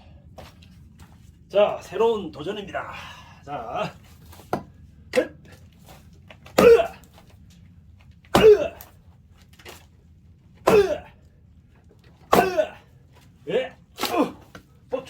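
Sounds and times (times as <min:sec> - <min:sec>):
axe blows into log: 0:06.6 - 0:07.0, 0:08.3 - 0:08.9, 0:12.3 - 0:12.8
man grunting: 0:06.6 - 0:07.0, 0:08.4 - 0:08.9, 0:10.7 - 0:11.2, 0:12.3 - 0:12.9, 0:14.0 - 0:14.4.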